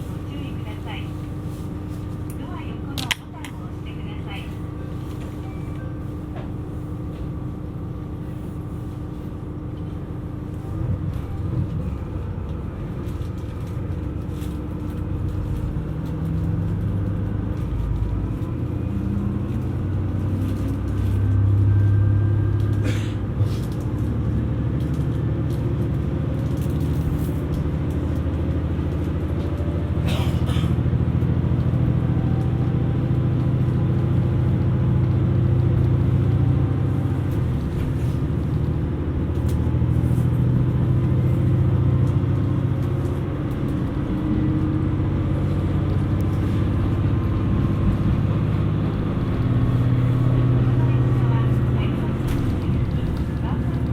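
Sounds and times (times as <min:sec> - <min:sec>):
diesel engine running up: 0:10.5 - 0:53.9.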